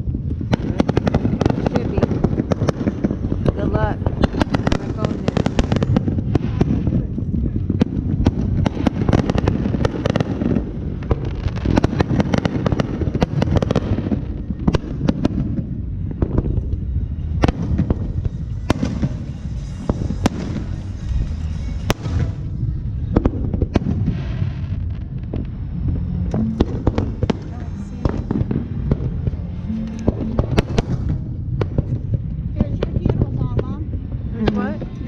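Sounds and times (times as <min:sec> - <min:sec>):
fireworks bangs: 0:00.0 - 0:35.0
fireworks crackling: 0:00.0 - 0:35.0
low rumble: 0:00.0 - 0:35.0.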